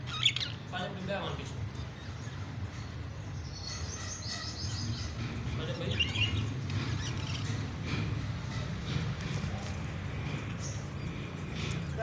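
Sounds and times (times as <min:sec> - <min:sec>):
parrots chirping: 0:00.0 - 0:00.8, 0:03.4 - 0:07.7.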